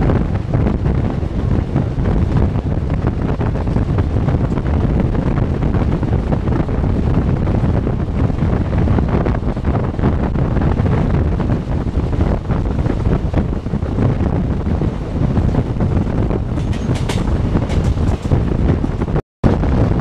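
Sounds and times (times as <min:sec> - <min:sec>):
train rumbling and rattling: 0:00.0 - 0:20.0
wind buffeting microphone: 0:00.0 - 0:20.0.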